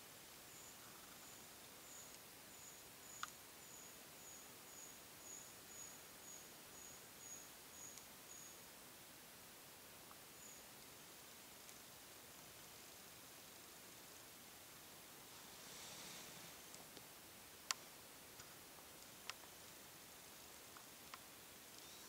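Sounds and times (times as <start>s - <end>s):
small bird high whistled notes: 21.8s - 22.0s.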